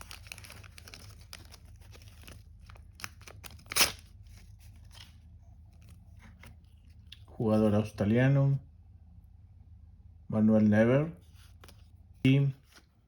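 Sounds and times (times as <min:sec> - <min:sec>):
paper ripping: 0:00.0 - 0:05.2
stickers rustling and crinkling: 0:00.0 - 0:07.1.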